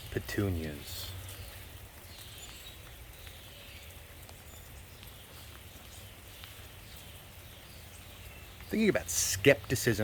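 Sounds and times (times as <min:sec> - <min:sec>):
light ticks: 0:01.1 - 0:07.0.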